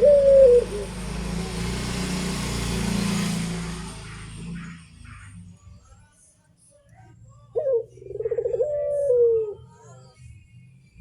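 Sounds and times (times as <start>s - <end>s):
motor vehicle passing by: 0.0s - 5.9s.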